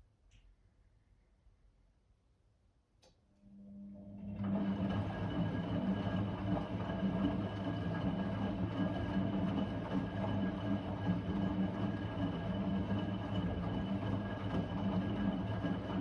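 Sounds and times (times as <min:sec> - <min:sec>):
washing machine motor running: 0:04.2 - 0:16.0.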